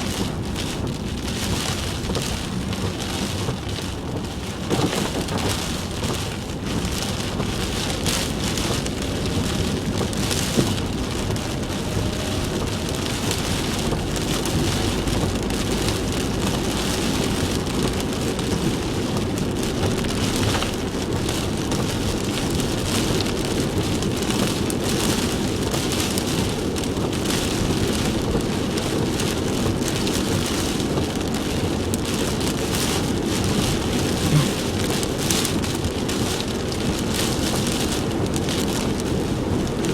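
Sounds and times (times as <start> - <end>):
heavy rain beating on car: 0.0 - 39.9
tyre noise on wet road: 0.0 - 39.9.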